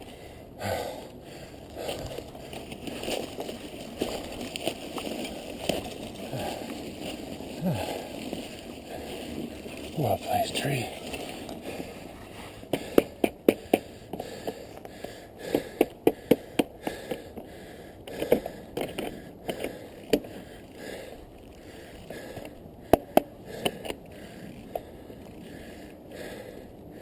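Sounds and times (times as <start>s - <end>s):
bike tyres rolling hiss on snow: 0.0s - 15.5s, 16.4s - 27.0s
bike clicks and knocks: 1.8s - 7.3s, 12.7s - 20.4s, 22.1s - 25.4s.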